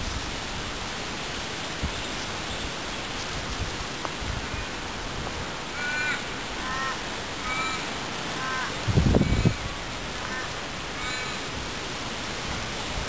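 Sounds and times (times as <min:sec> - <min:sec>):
steady background hiss: 0:00.0 - 0:13.0
bird calls: 0:05.7 - 0:11.6.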